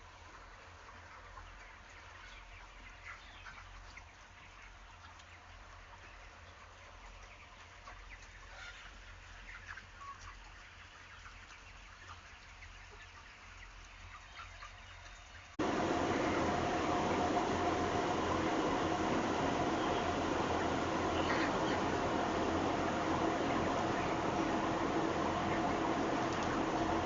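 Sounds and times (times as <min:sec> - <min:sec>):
chickens clucking and chirping: 0:00.0 - 0:27.0
low steady hum: 0:15.6 - 0:27.0.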